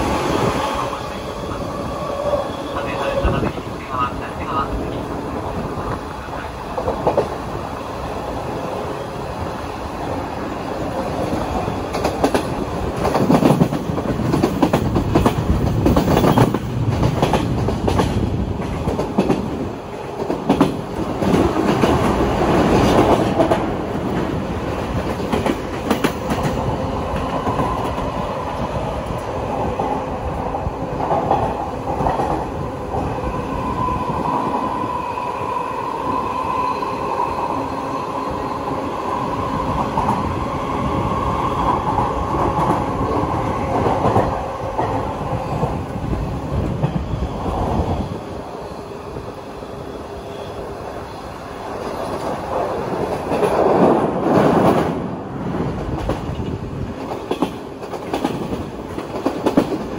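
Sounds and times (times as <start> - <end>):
train rumble heard on board: 0.0 - 37.2, 38.6 - 59.9.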